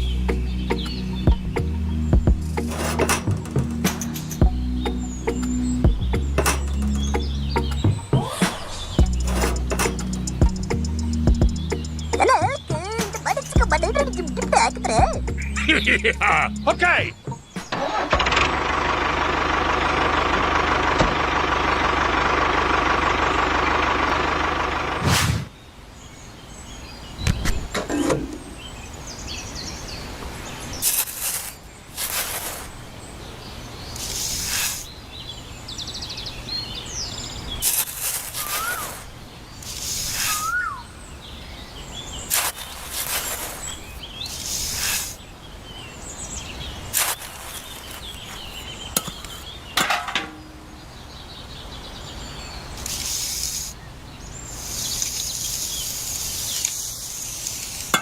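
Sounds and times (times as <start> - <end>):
birds chirping: 0.0 - 58.0
short scraping bursts: 2.5 - 4.4, 8.2 - 10.3, 42.3 - 45.2.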